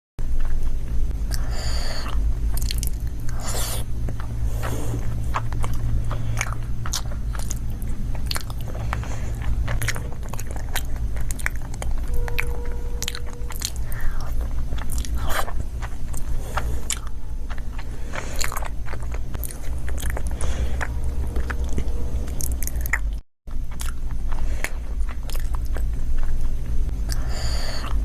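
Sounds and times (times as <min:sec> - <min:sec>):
steady low hum: 0:00.2 - 0:28.0
wet chewing with mouth clicks: 0:00.3 - 0:28.0
hissy mouth sounds: 0:01.3 - 0:23.0.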